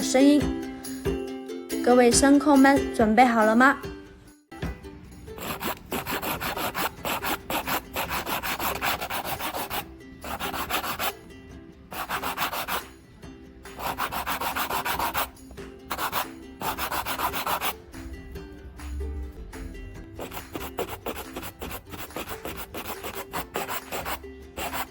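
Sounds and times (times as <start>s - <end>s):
nail file rasping on fingernails: 5.4s - 11.1s, 11.9s - 12.9s, 13.8s - 15.3s, 15.9s - 17.7s, 20.2s - 24.9s.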